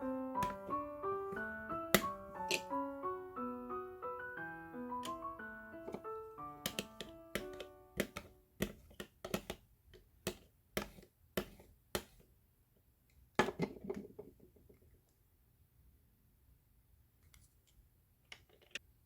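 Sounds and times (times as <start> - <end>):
background piano music: 0.0 - 8.6.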